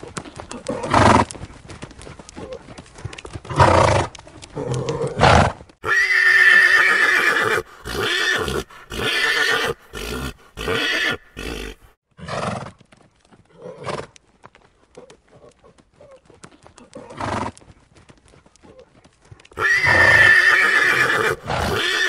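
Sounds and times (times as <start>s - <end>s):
horse whinnying: 4.6s - 12.6s, 19.6s - 22.0s.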